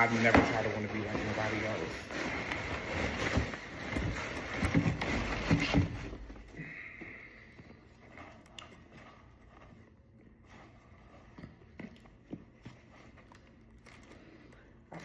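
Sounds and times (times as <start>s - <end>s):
cardboard box rustling: 0.0s - 6.5s.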